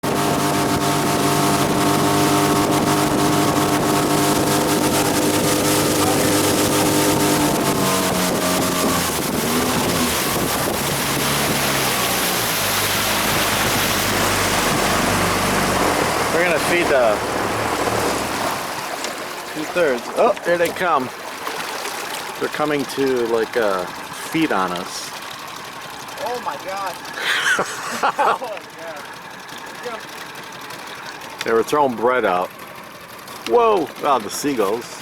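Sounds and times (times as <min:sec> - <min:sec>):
rush of wind and water: 0:00.0 - 0:25.5
boat engine running: 0:00.0 - 0:35.0.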